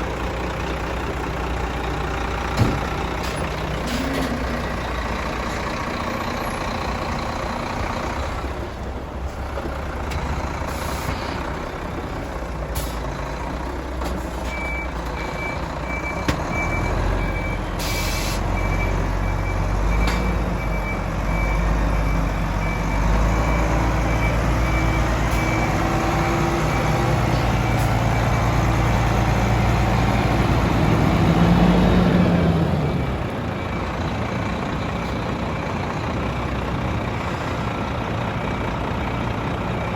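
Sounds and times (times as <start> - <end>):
truck diesel engine running: 0.0 - 39.9
air brake hiss: 10.7 - 11.4, 17.8 - 18.4
reversing beeper: 14.4 - 28.6.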